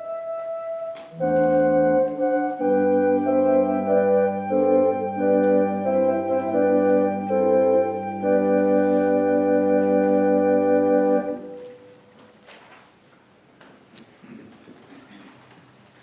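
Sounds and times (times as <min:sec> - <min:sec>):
organ playing sustained chords: 0:00.0 - 0:12.0.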